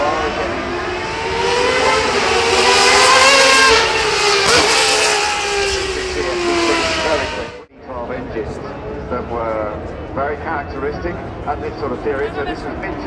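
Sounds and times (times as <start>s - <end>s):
car engine racing past: 0.5s - 7.6s.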